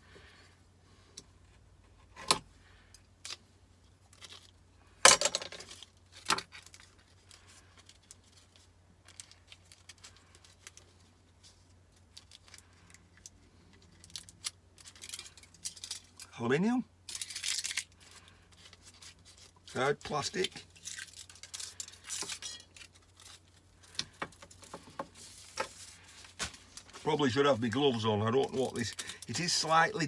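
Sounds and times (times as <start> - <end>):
metal and plastic pieces clattering: 5.1 - 6.9, 17.1 - 18.0.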